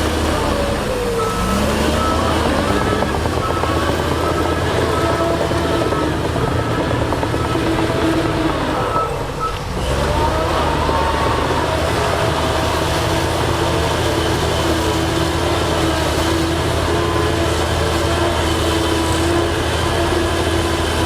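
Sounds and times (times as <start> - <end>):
heavy diesel machinery engines: 0.0 - 21.0.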